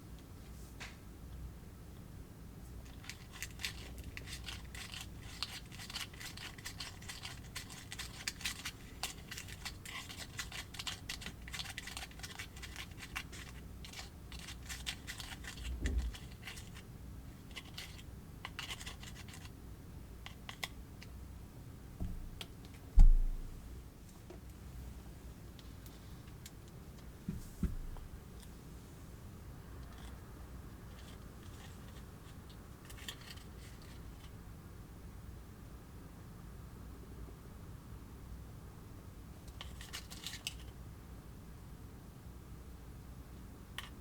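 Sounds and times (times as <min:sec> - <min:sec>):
plastic pieces scratching: 0:02.9 - 0:16.8, 0:17.5 - 0:19.5, 0:29.8 - 0:30.2, 0:30.9 - 0:34.3
soft thump: 0:22.0 - 0:22.2, 0:23.0 - 0:23.5, 0:27.3 - 0:28.0.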